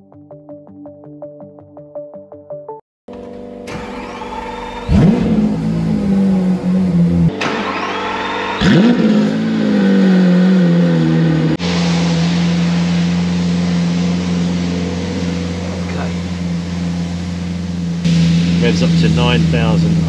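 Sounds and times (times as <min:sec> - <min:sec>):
car engine idling: 0:03.1 - 0:20.0
engine throttle blip: 0:11.6 - 0:20.0.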